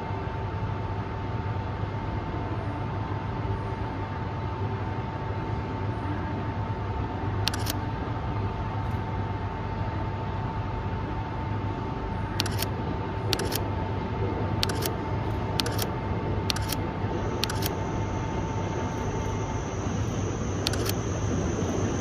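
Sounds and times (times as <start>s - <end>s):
background noise with low hum: 0.0s - 22.0s
camera shutter double clicks: 7.5s - 7.8s, 12.4s - 12.7s, 13.3s - 13.6s, 14.6s - 15.0s, 15.6s - 15.9s, 16.5s - 16.8s, 17.4s - 17.8s, 20.6s - 21.0s.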